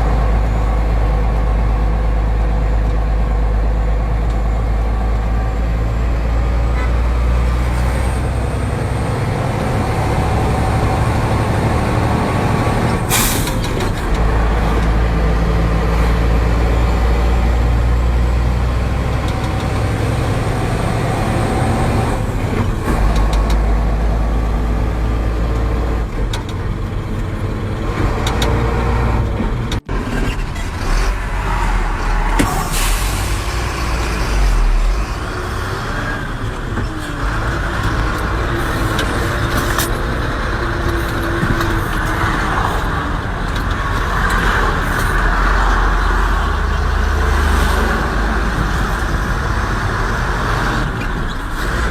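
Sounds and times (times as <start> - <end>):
truck engine running: 0.0 - 51.9
air brakes hissing: 13.1 - 13.8, 32.3 - 34.6.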